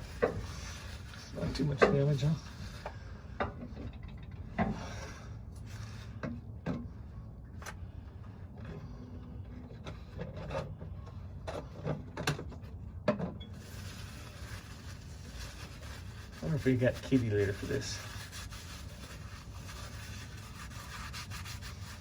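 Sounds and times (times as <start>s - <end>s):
rubbing and rustling: 13.6s - 22.0s.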